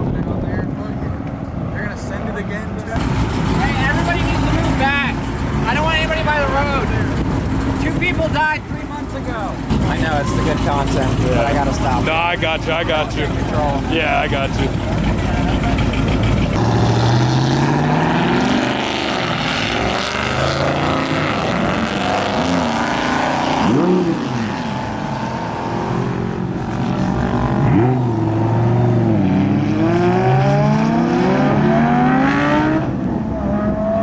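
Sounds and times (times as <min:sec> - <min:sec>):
car engines accelerating: 0:00.0 - 0:34.0
engine rev blips: 0:09.6 - 0:34.0.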